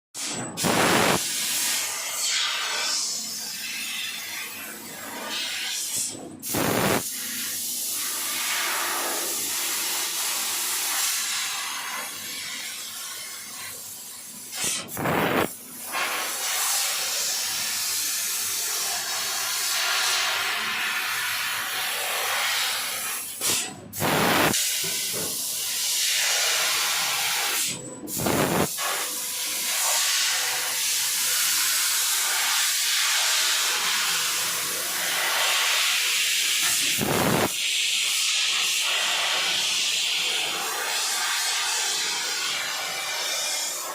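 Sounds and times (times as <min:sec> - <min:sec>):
laser cutter gas jet hissing: 0:00.2 - 0:43.9.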